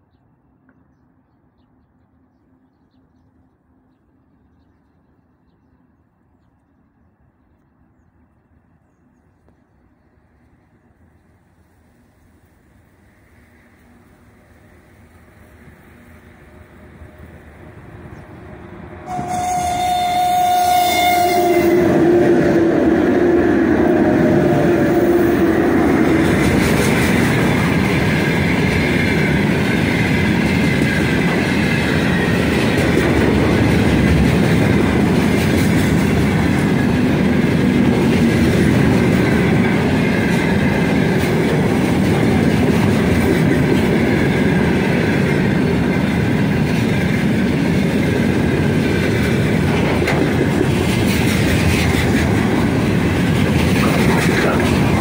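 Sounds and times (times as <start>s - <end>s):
train rumble: 6.8s - 55.0s
locomotive horn: 19.0s - 23.1s
wheels clacking over rail joints: 25.4s - 55.0s.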